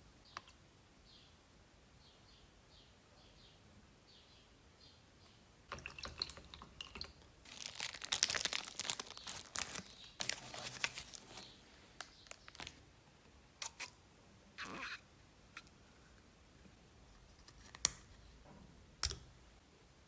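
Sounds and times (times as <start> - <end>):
crunching and crinkling: 6.9 - 12.8.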